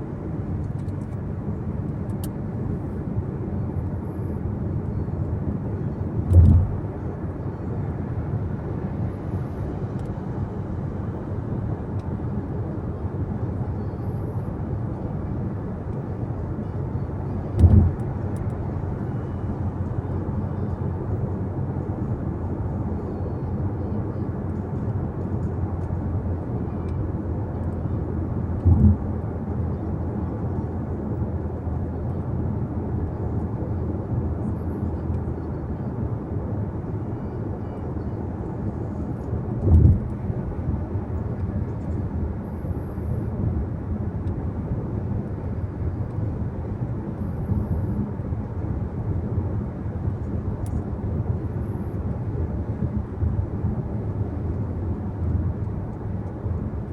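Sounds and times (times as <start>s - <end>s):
car road and engine drone: 0.0s - 56.9s
short low thumps: 17.6s - 18.0s.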